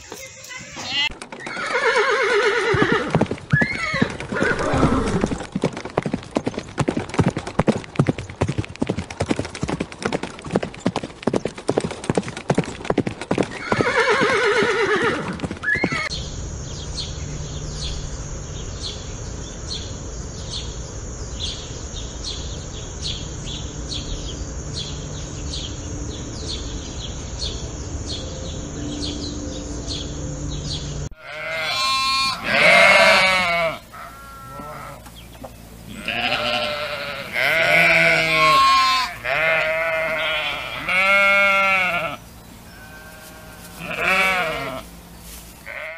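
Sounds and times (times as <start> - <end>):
sheep bleating: 31.2 - 35.0, 35.9 - 44.9, 45.6 - 45.9.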